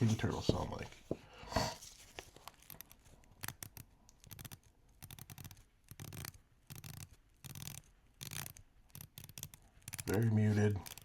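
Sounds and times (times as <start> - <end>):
watch bezel clicking: 2.5 - 11.0.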